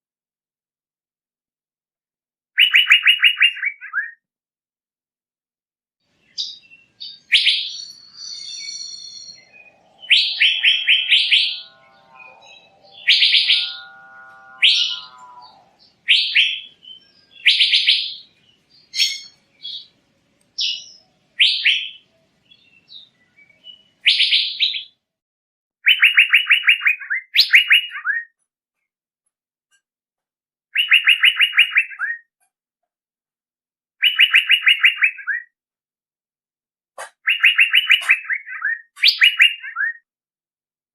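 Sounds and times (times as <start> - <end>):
bird calling rattling notes: 7.2 - 18.0
low drawn-out sound: 9.3 - 15.9.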